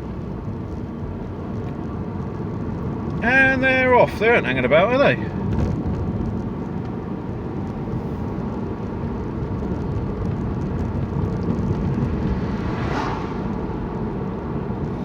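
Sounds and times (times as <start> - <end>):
car road and engine rumble: 0.0 - 15.0
brief rushing sound: 11.9 - 14.2.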